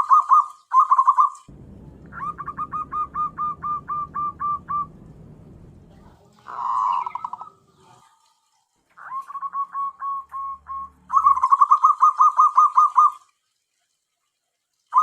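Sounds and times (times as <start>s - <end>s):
dove cooing: 2.1s - 5.6s, 6.4s - 8.0s, 9.0s - 13.2s.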